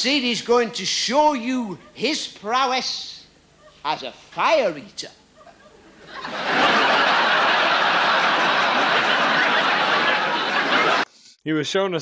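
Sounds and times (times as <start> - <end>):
audience laughing: 5.3 - 11.1.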